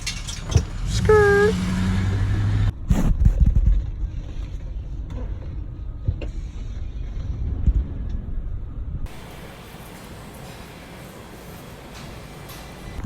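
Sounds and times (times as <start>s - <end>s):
vehicle road rumble: 0.0s - 9.2s.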